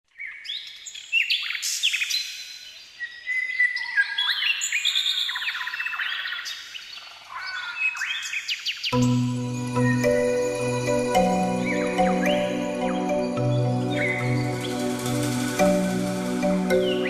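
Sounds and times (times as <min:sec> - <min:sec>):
birds singing: 0:00.2 - 0:09.1, 0:09.7 - 0:17.0.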